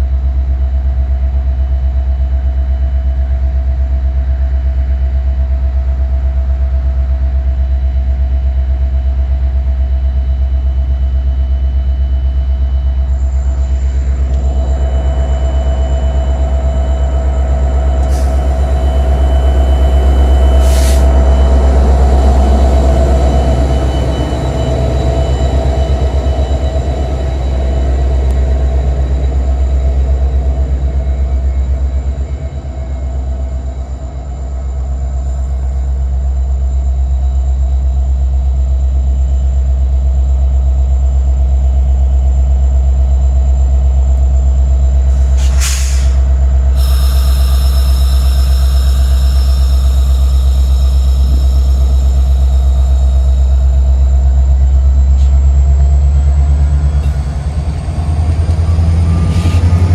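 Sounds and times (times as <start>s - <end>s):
constant hum: 12.4s - 59.9s
train rumbling: 12.6s - 36.4s, 44.8s - 59.9s.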